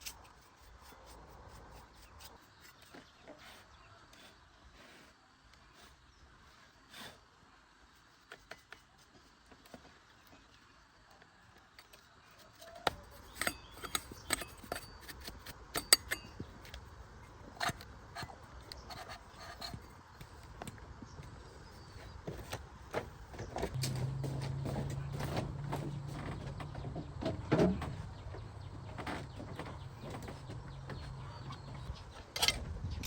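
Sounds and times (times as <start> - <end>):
metal tools clinking and knocking: 13.2 - 16.6, 32.3 - 32.7.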